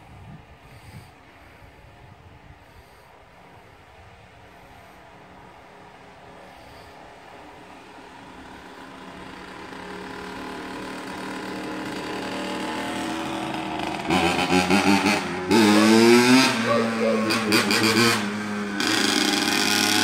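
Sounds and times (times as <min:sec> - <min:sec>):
dirt bike engine revving: 0:08.9 - 0:20.0.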